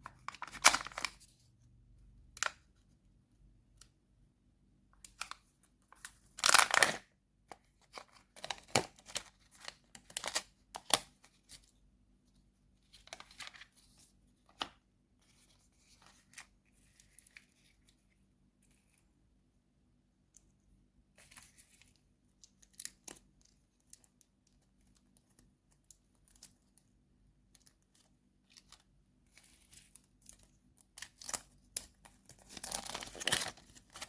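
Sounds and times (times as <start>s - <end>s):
candy wrapper tearing and crinkling: 0.3s - 1.2s, 6.0s - 7.1s, 31.0s - 34.0s.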